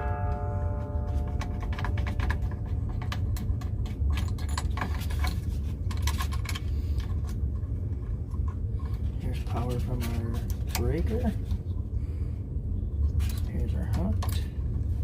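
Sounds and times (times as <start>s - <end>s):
hand tools clinking: 0.0s - 5.4s
steady low hum: 0.0s - 15.0s.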